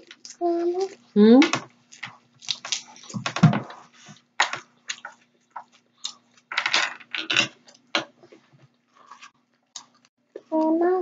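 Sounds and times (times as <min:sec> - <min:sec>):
eating crunches and clicks: 0:00.0 - 0:03.5, 0:04.4 - 0:06.5.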